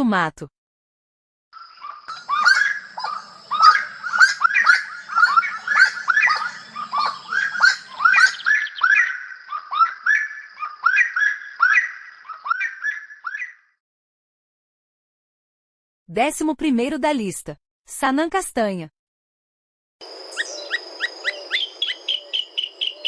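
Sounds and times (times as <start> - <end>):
bird calling rapid sharp notes: 1.8 - 13.6, 20.4 - 23.0.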